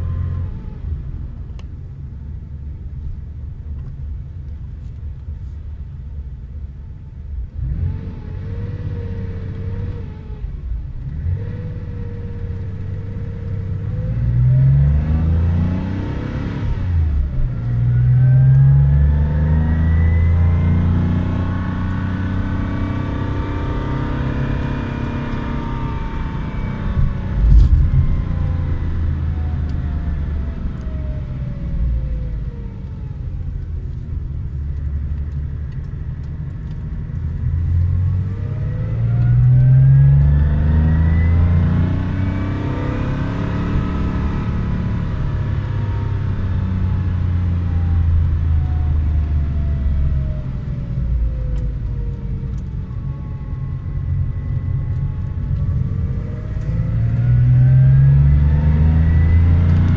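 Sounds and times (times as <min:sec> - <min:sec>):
low road rumble: 0:00.0 - 0:59.9
car engine accelerating: 0:07.4 - 0:59.9.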